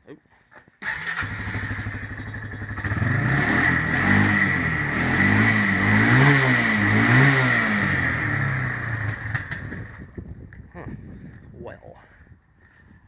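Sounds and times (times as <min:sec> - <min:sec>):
atv engine running unevenly: 0:01.2 - 0:10.2.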